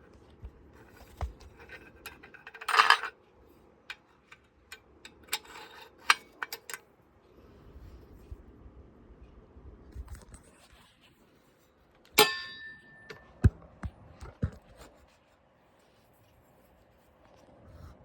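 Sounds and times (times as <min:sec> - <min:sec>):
sharp ringing clink: 0:12.2 - 0:13.3.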